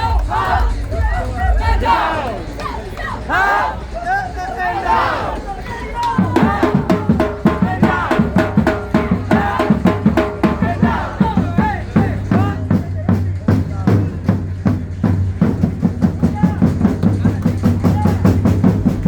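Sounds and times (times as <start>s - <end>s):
drum kit beat: 6.1s - 19.0s.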